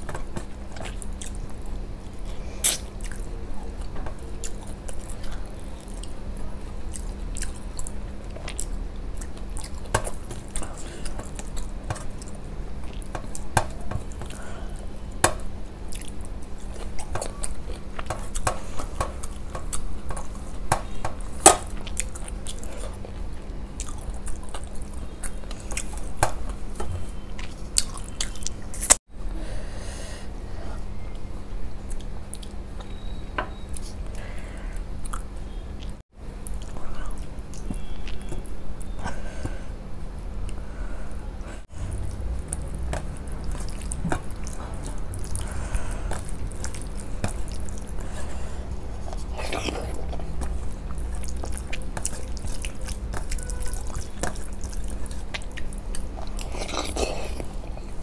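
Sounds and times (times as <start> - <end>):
person chewing food: 0.0 - 29.0, 31.8 - 39.7, 41.4 - 58.0
mouth clicks and smacks: 35.0 - 39.6, 41.9 - 58.0.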